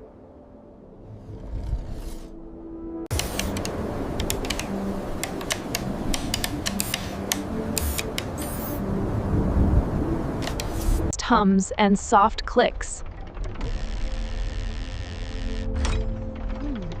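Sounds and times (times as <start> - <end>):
sharp mechanical clicks: 3.1 - 8.8
low mechanical hum: 3.1 - 11.1.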